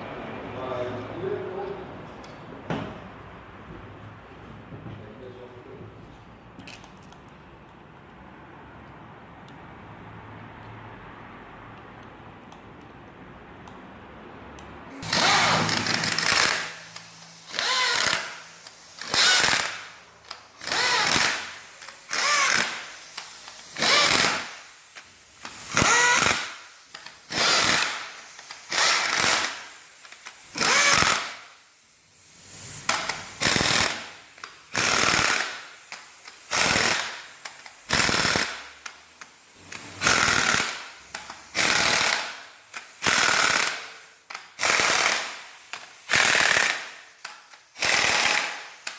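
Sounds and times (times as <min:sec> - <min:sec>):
impact wrench hammering: 0:15.0 - 0:31.5, 0:32.8 - 0:39.0, 0:39.6 - 0:48.9.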